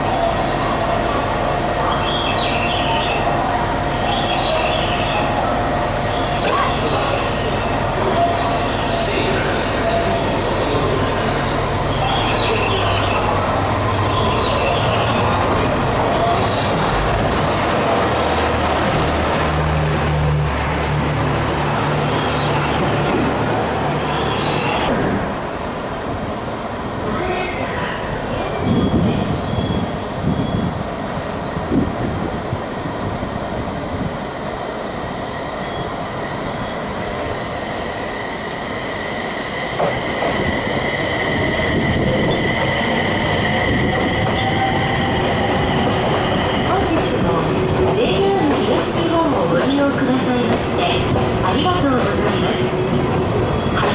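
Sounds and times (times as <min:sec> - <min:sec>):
train rushing rumble: 0:00.0 - 0:53.9.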